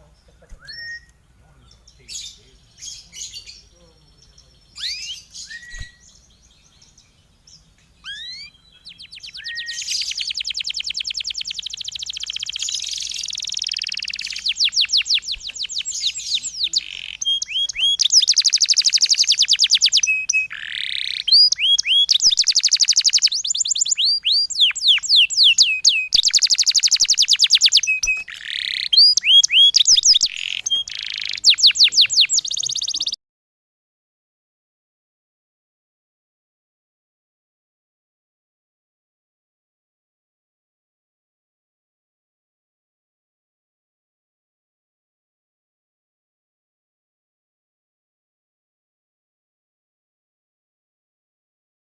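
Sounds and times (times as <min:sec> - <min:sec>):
songbird trilling: 0:00.2 - 0:33.2.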